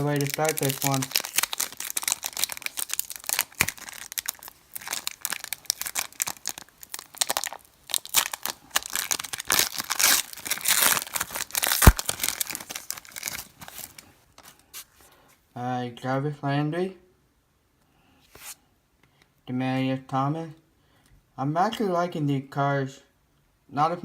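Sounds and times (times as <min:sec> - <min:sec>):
foil wrapper crinkling and tearing: 0:00.0 - 0:14.6.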